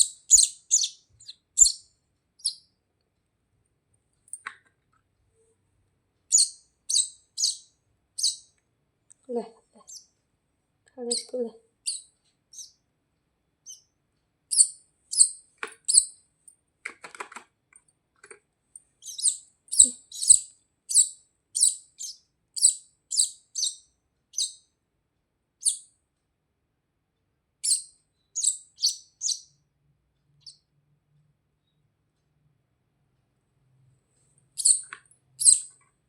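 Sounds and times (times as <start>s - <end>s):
baby birds chirping: 0.0s - 2.7s, 6.3s - 8.6s, 9.8s - 10.1s, 11.0s - 12.8s, 13.6s - 13.9s, 14.5s - 16.2s, 19.0s - 24.6s, 27.6s - 29.6s, 34.6s - 35.8s.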